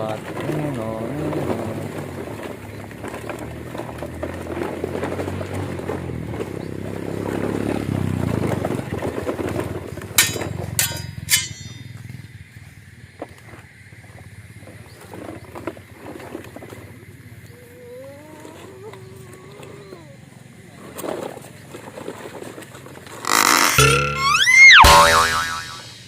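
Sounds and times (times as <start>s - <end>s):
sharp ringing clinks: 10.2s - 12.2s
rough scraping: 21.0s - 26.0s.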